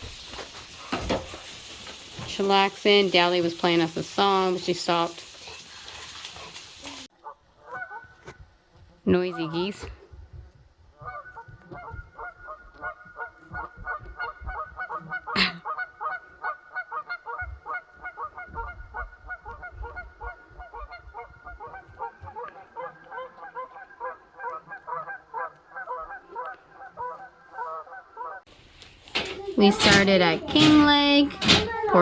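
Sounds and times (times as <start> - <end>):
geese honking: 7.1 - 10.0, 10.9 - 32.0.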